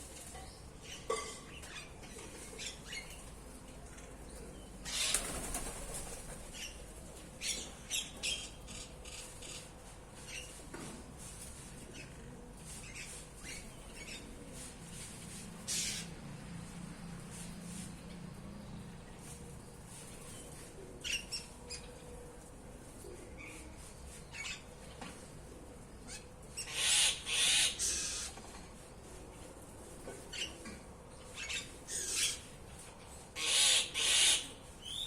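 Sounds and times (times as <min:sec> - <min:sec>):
wings flapping: 0:05.0 - 0:06.4
birds chirping and squawking: 0:15.7 - 0:16.2.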